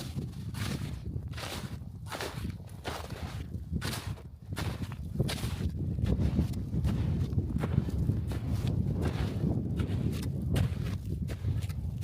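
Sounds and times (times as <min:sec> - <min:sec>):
crunching footsteps: 0:00.0 - 0:12.0
steady low rumble: 0:03.5 - 0:12.0.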